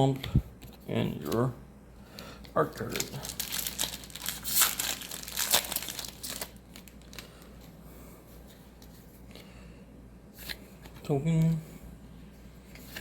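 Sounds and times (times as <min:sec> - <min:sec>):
cards rustling and ticking: 0:02.1 - 0:07.8
foil wrapper crinkling and tearing: 0:02.6 - 0:07.5.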